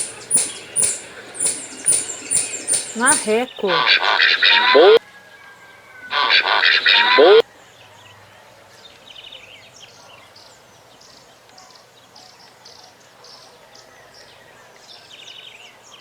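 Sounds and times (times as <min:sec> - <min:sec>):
high bird chirps: 0:00.0 - 0:05.0, 0:06.1 - 0:07.4.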